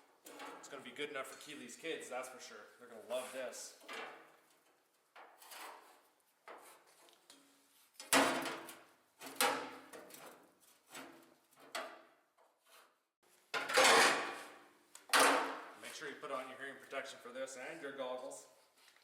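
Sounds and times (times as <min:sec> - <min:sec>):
tools scraping and knocking: 0:05.2 - 0:12.9, 0:13.5 - 0:15.6.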